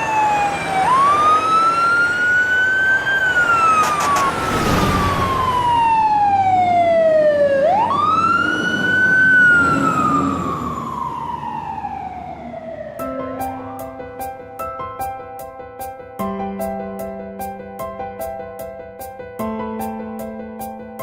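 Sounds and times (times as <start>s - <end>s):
emergency siren wailing: 0.0s - 14.0s
brief rushing sound: 3.6s - 6.4s.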